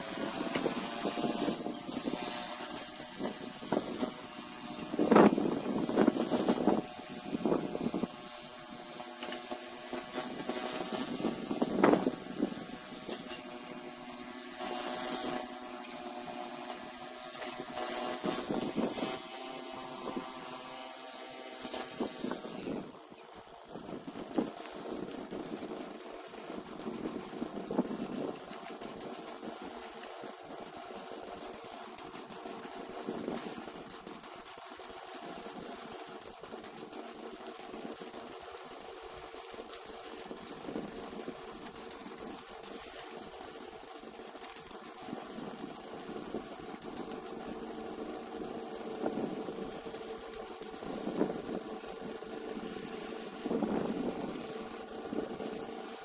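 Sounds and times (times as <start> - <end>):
snowblower engine running: 0.0 - 56.0.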